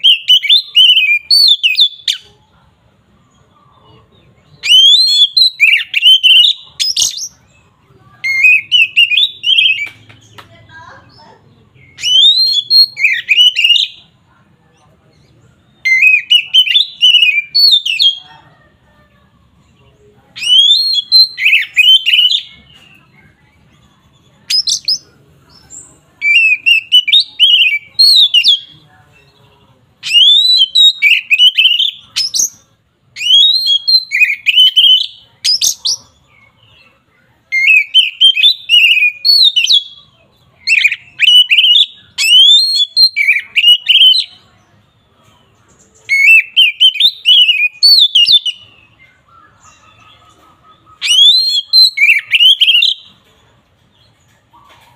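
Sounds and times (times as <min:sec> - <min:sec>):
bird singing whistled phrases: 0:00.0 - 0:02.3, 0:04.5 - 0:07.3, 0:08.2 - 0:10.0, 0:11.8 - 0:14.0, 0:15.7 - 0:18.2, 0:20.4 - 0:23.0, 0:26.2 - 0:28.7, 0:30.0 - 0:36.1, 0:37.5 - 0:44.5, 0:46.0 - 0:50.1, 0:50.8 - 0:53.1.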